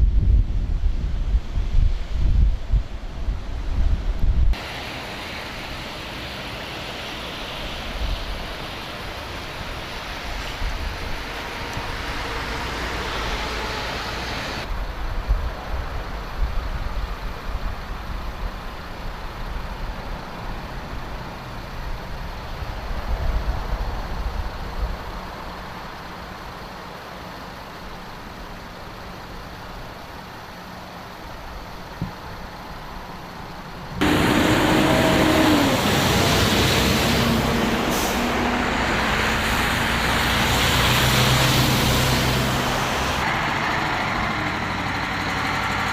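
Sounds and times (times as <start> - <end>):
truck engines rumbling: 3.2 - 45.9.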